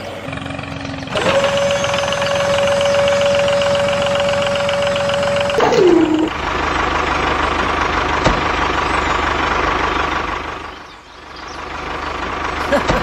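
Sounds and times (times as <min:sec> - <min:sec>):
tractor engine chugging: 0:00.3 - 0:13.0
falling whine: 0:05.4 - 0:06.4.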